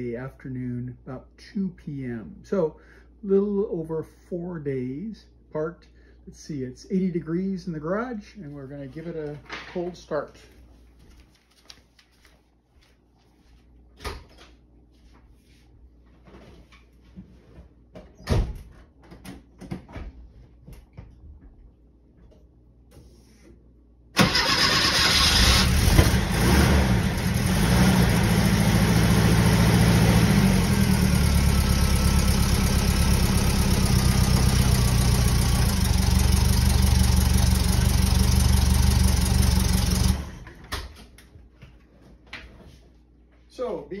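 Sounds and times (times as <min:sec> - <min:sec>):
car engine starting and idling: 0:24.2 - 0:40.6.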